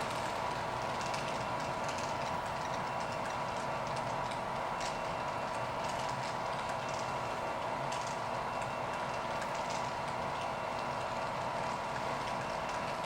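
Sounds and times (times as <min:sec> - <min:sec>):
freight cars rolling past: 0:00.0 - 0:01.9.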